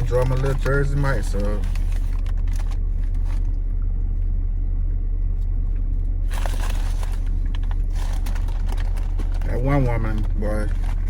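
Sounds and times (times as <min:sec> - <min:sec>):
car engine idling: 0:00.0 - 0:11.0
rustling: 0:06.3 - 0:11.0.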